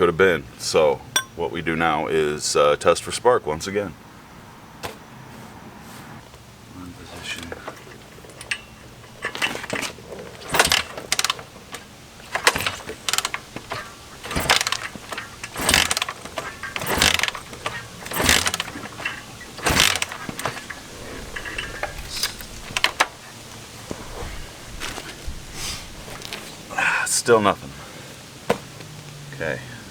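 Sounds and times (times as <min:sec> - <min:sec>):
engine turning over: 0:06.8 - 0:29.9
motorcycle kick-starter ratcheting: 0:07.0 - 0:26.6.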